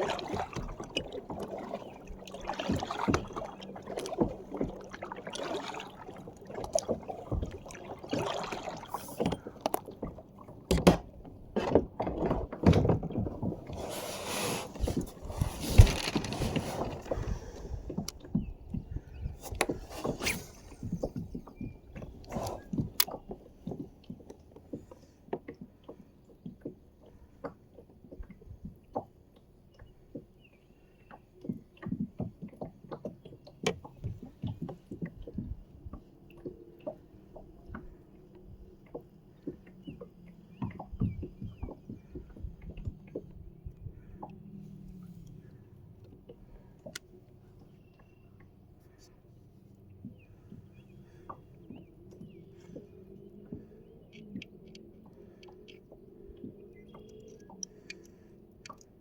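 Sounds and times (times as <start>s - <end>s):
water splashing and sloshing: 0.0s - 59.0s
knocks against kayak hull: 10.7s - 13.4s.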